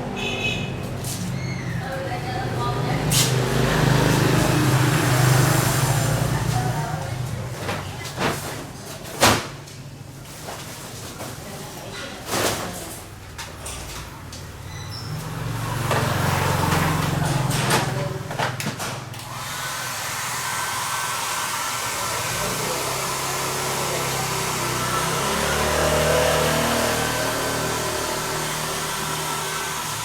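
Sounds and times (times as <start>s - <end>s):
hot-air blower hissing: 19.2s - 30.0s.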